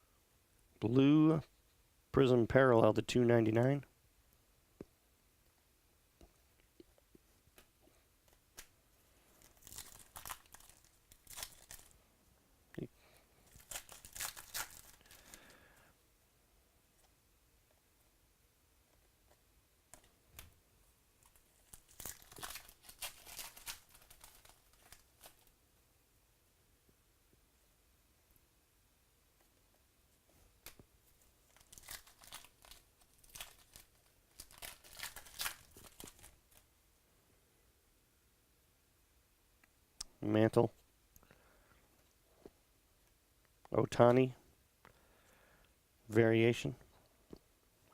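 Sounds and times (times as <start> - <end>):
foil wrapper tearing and crinkling: 9.4 - 11.9, 13.5 - 15.5, 21.2 - 25.5, 31.4 - 36.6.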